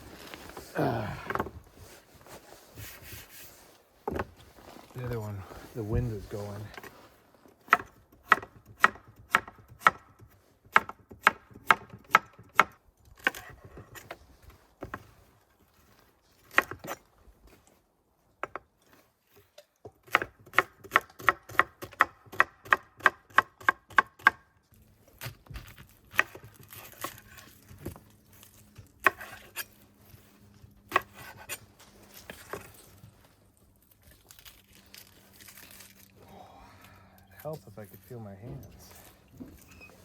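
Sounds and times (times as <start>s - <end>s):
knife chopping vegetables on board: 20.0s - 24.4s.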